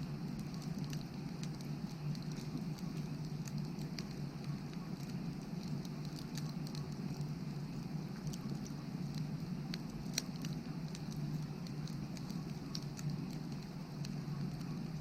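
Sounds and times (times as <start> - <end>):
low background noise: 0.0 - 15.0
wood fire crackling: 0.0 - 15.0.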